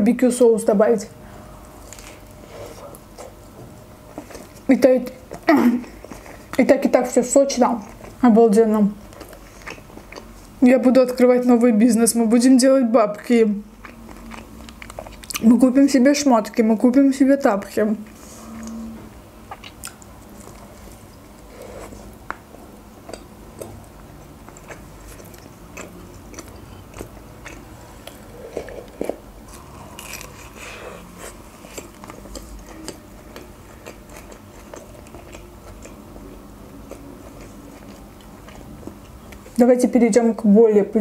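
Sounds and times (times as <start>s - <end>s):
chewing a burger: 9.0s - 10.6s, 13.7s - 15.5s, 19.4s - 39.6s.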